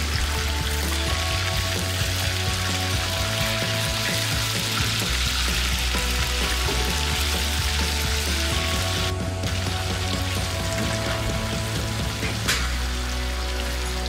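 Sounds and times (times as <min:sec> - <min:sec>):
background music: 0:00.0 - 0:14.0
meatballs sizzling in oil: 0:00.0 - 0:14.0.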